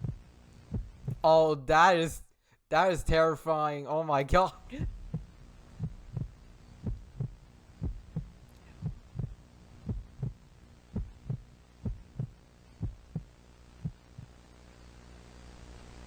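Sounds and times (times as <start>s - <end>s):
heartbeat thumps: 0.0s - 1.3s, 4.3s - 14.4s
low steady hum: 0.0s - 16.0s.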